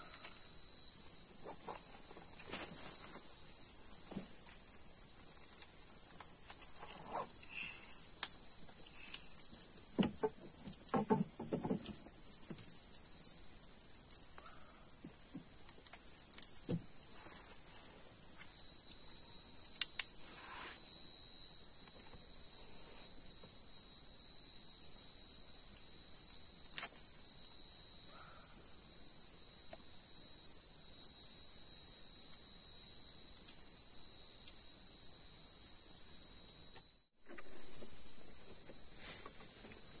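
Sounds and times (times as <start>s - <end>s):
insects chirring: 0.0s - 40.0s
faint knocks and clicks: 10.0s - 12.7s.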